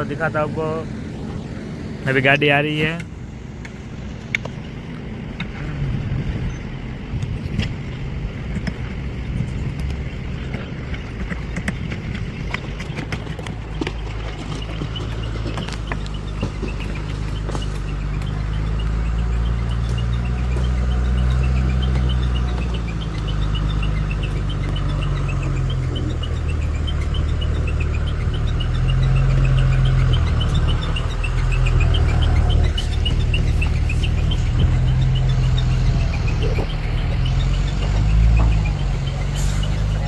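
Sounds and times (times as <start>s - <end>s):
diesel truck engine running: 0.0s - 40.0s.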